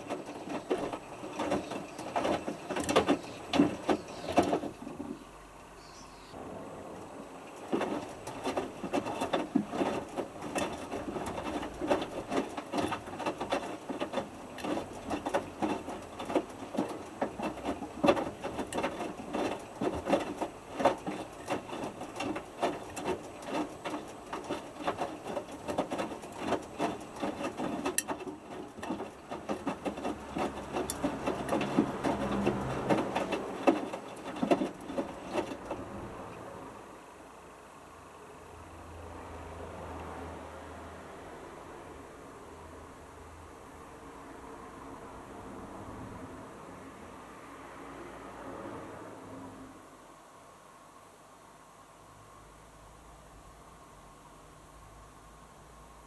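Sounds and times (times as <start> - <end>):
washing machine drum sloshing: 0.0 - 5.6, 6.4 - 36.8.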